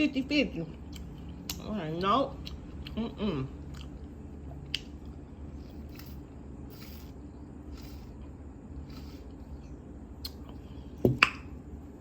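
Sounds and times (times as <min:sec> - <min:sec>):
steady low hum: 0:00.0 - 0:12.0
chewing and mouth smacking: 0:02.3 - 0:06.9.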